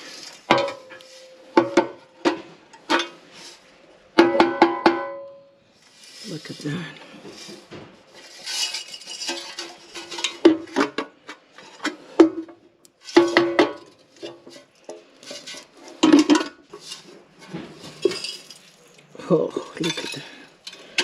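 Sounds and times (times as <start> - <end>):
sharp metallic knocks: 4.2 - 5.5.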